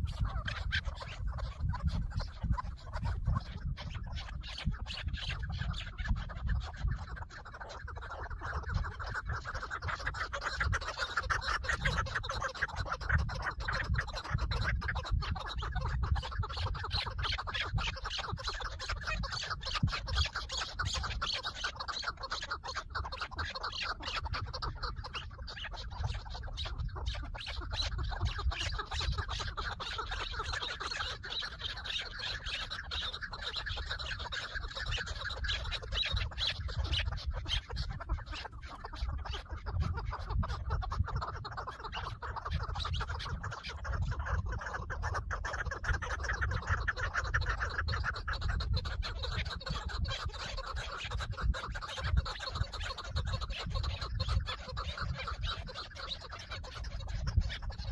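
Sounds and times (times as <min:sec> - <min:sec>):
partridges chuckling calls: 0:00.0 - 0:57.9.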